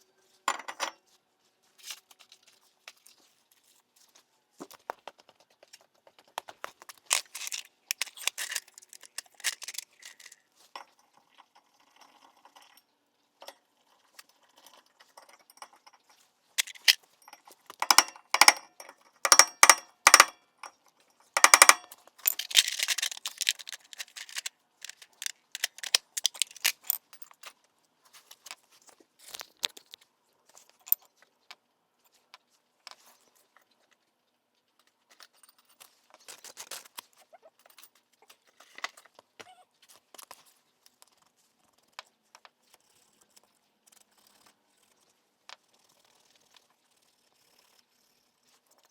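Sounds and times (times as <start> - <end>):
metal tools clinking and clattering: 7.1 - 11.0, 14.6 - 20.4, 21.4 - 27.4.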